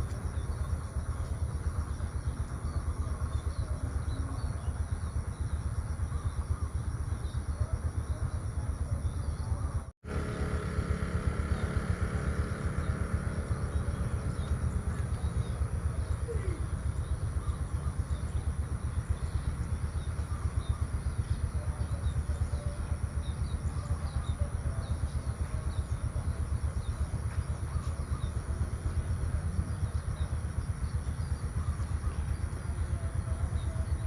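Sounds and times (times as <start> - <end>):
faint bird chirps: 11.2 - 34.0.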